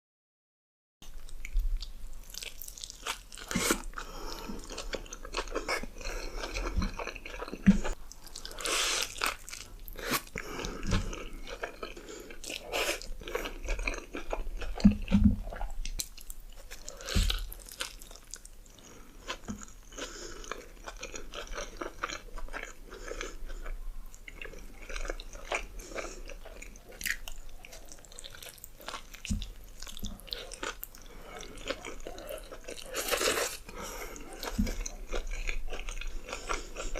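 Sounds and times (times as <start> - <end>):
wet open-mouthed chewing: 1.1 - 36.9
biting and crunching burger: 24.8 - 36.9.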